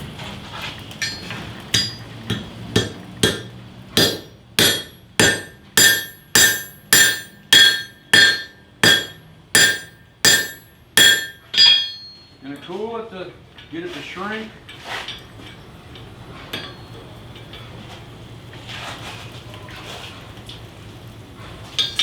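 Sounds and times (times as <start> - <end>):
hammer striking metal on anvil: 1.0 - 12.3, 21.8 - 22.0.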